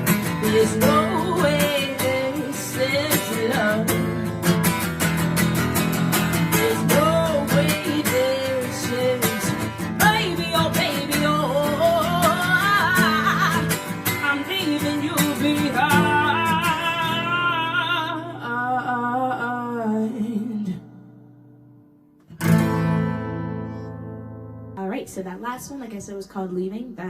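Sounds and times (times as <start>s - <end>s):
acoustic guitar strumming: 0.0s - 25.6s
woman singing wordless melody: 0.2s - 4.3s, 6.4s - 21.1s.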